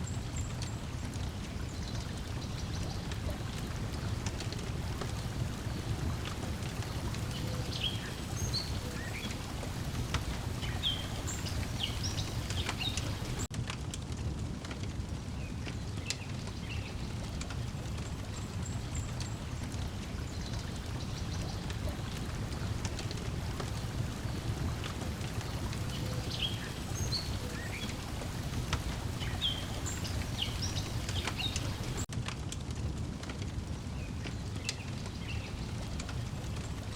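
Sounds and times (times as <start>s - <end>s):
water lapping at shore: 0.0s - 13.5s, 16.2s - 32.1s
wood fire crackling: 0.0s - 36.9s
small birds chirping: 0.2s - 13.5s, 16.0s - 32.1s.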